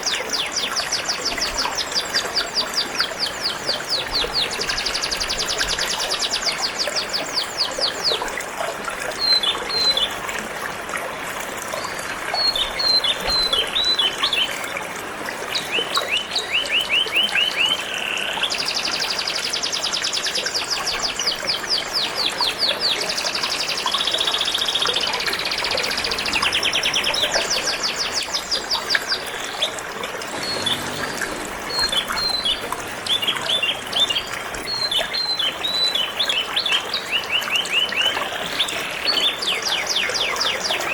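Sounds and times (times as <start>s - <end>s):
flowing water: 0.0s - 40.9s
canary singing trills: 30.3s - 40.9s.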